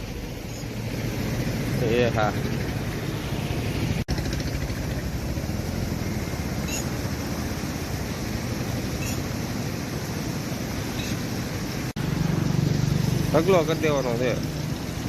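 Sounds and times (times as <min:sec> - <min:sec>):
floodwater pouring over dam: 0:03.6 - 0:15.0.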